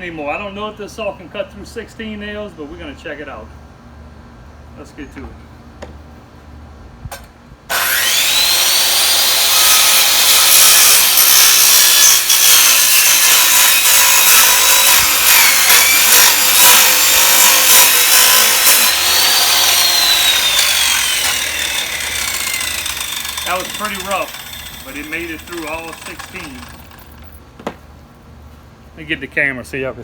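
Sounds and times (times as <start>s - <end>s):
circular saw motor whine: 7.7s - 27.2s
circular saw cutting wood and nails: 7.7s - 27.4s.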